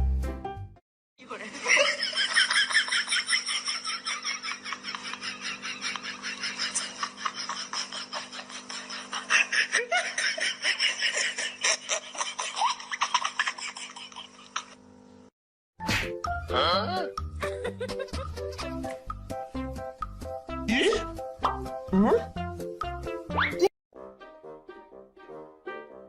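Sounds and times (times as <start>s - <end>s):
laughter in quick bursts: 1.6s - 14.8s, 17.4s - 18.8s.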